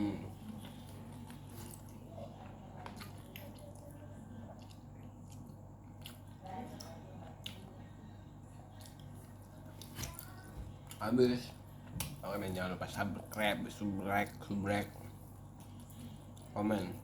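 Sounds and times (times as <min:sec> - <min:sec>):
steady low hum: 0:00.0 - 0:17.0
wet chewing: 0:00.4 - 0:07.6.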